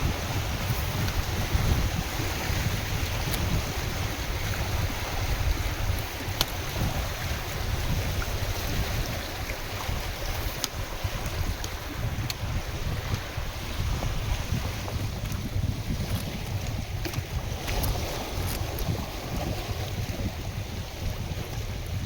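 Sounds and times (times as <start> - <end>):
waves lapping and splashing: 0.0 - 22.0
wind buffeting microphone: 0.0 - 22.0.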